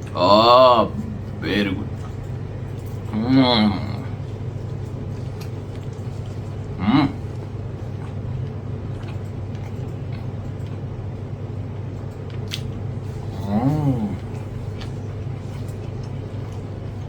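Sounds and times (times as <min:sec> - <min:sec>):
steady low hum: 0:00.0 - 0:17.0
person chewing food: 0:00.8 - 0:11.1, 0:11.7 - 0:17.0
person humming mm: 0:03.1 - 0:04.2, 0:06.8 - 0:07.3, 0:13.3 - 0:14.5.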